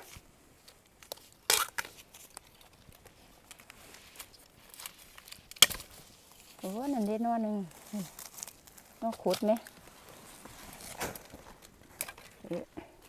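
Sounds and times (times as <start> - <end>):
crunching in dry undergrowth: 0.0 - 12.6
sharp crack: 4.8 - 6.1, 10.8 - 11.4.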